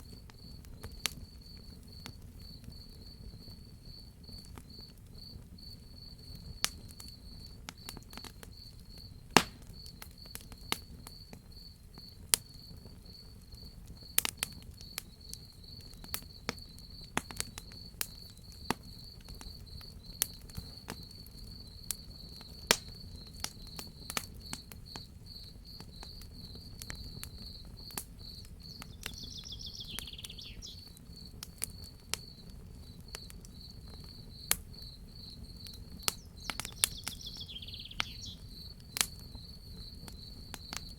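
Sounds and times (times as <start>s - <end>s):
crickets chirping: 0.0s - 40.9s
wood fire crackling and popping: 0.0s - 40.9s.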